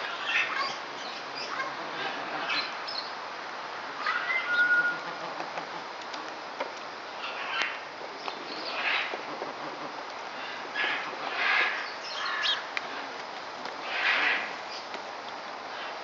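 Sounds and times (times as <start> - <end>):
rising whistle-like bird call: 4.1 - 5.0.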